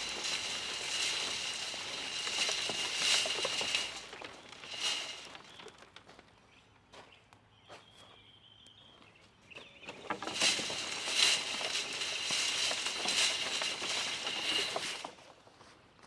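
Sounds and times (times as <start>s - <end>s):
wood chips rattling: 0.0s - 6.2s, 9.8s - 15.3s.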